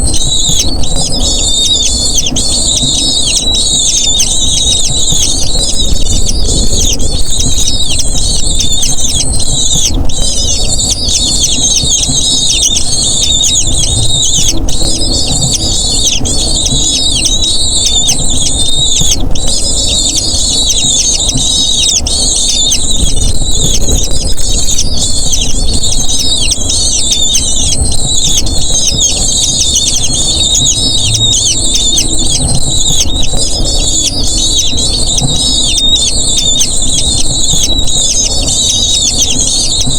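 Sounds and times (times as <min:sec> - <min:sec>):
low rumble: 0:00.0 - 0:38.8
eagle chicks squealing: 0:00.0 - 0:39.9.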